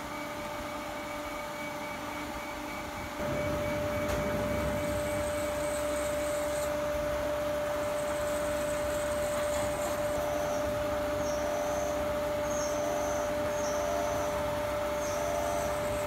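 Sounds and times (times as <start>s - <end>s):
milling machine whine and hum: 0.0s - 16.0s.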